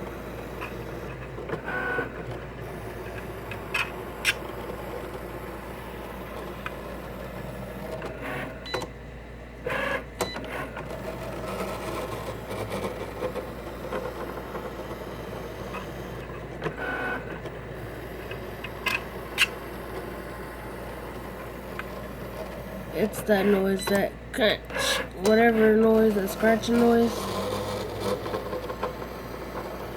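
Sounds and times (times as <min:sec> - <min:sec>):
cutting machine motor whirring: 0:00.0 - 0:08.9, 0:09.6 - 0:29.9.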